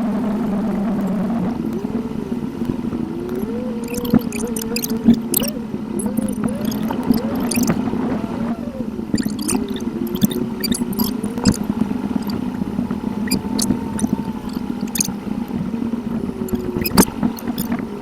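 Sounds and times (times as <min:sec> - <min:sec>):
steady car interior hum: 0:00.0 - 0:18.0
wavering higher tone: 0:01.1 - 0:18.0
rapid high-pitched clicks: 0:02.6 - 0:08.4, 0:09.1 - 0:15.6, 0:16.4 - 0:17.9.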